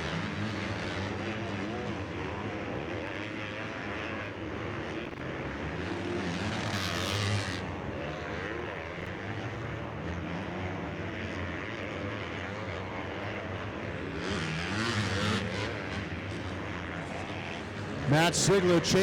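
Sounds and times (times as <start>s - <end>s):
motocross bike engines revving: 12.0s - 19.0s.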